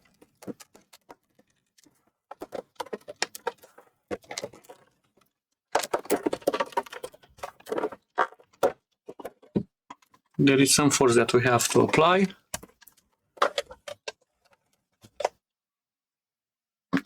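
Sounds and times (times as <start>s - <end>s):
plastic case clicking and scraping: 0.0s - 15.4s.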